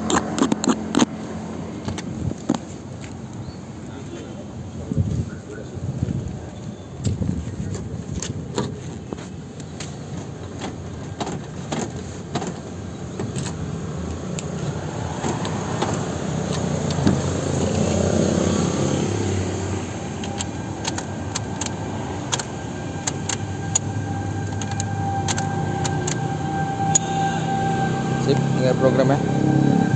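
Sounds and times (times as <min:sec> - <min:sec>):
sharp mechanical clicks: 0:20.2 - 0:26.3.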